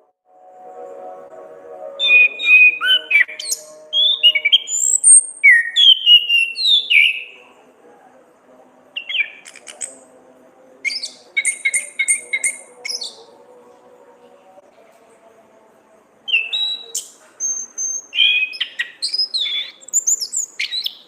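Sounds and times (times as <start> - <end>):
thrush singing whistled phrases: 2.0 - 7.4, 9.0 - 10.0, 10.9 - 13.2, 16.3 - 21.0.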